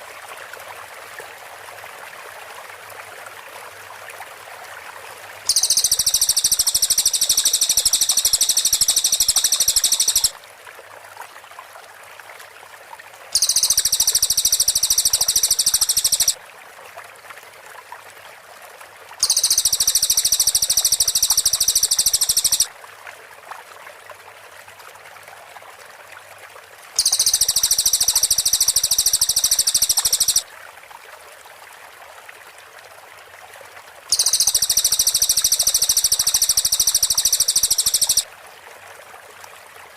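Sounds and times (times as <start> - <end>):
faint steady hiss: 2.1 - 17.1, 19.1 - 23.5, 24.2 - 31.8, 33.7 - 39.9
bird rattling trill: 5.5 - 10.3, 13.4 - 16.4, 19.2 - 22.7, 27.0 - 30.4, 34.1 - 38.2.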